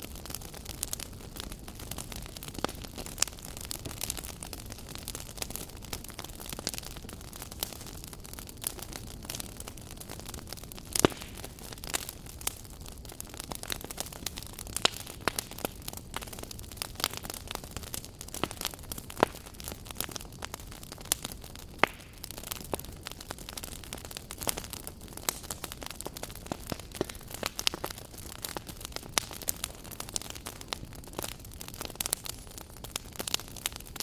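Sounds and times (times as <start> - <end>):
wood fire crackling and popping: 0.0 - 34.0.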